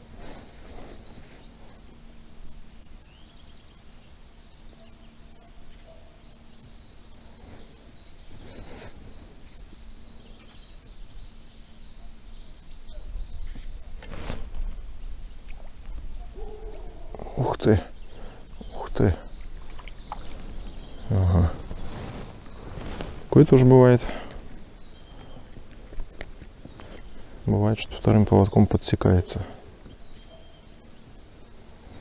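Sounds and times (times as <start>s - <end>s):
outdoor hush: 0.0s - 32.0s
small bird chirping: 2.8s - 32.0s
brief rustles: 13.9s - 14.8s, 19.7s - 24.6s.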